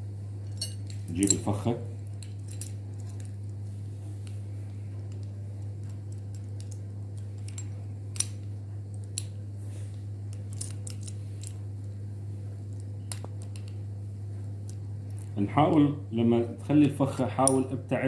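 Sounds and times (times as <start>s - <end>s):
steady low hum: 0.0s - 18.0s
small metal clicks and clinks: 0.4s - 1.5s, 2.2s - 3.3s.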